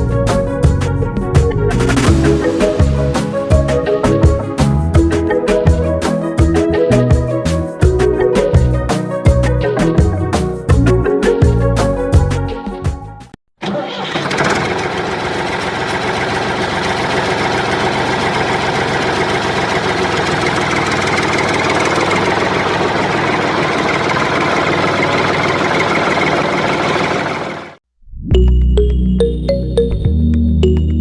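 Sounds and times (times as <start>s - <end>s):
tractor engine running: 0.0s - 8.1s, 13.6s - 27.8s
music: 0.0s - 13.4s, 28.3s - 31.0s.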